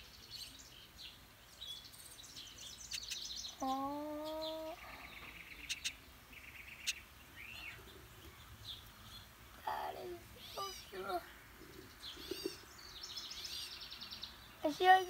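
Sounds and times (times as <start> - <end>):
small birds chirping: 0.0 - 15.0
low voice-like tone: 3.6 - 4.8.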